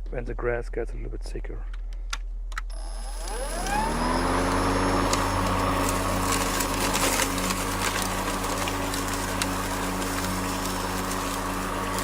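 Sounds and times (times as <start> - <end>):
electric lawn mower running: 2.7 - 12.0
grass crackling under blade: 3.4 - 12.0.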